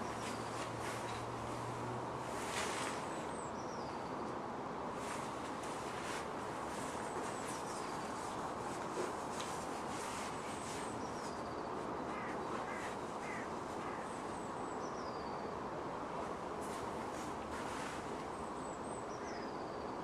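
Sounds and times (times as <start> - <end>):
birds calling: 0.0 - 4.3, 5.0 - 15.5, 16.6 - 19.8
city background hum: 0.0 - 20.0.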